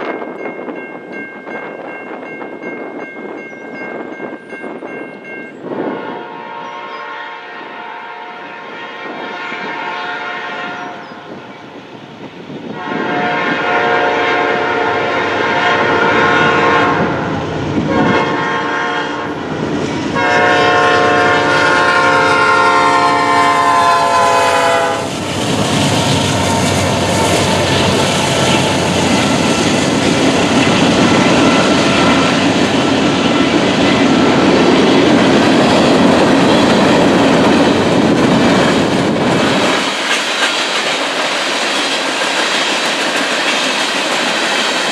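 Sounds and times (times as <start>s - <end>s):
freight train rolling by: 0.0s - 44.9s
locomotive air horn blasts: 5.8s - 11.3s, 12.8s - 19.5s, 20.2s - 25.2s
wheels clicking over rail joints: 26.9s - 44.9s.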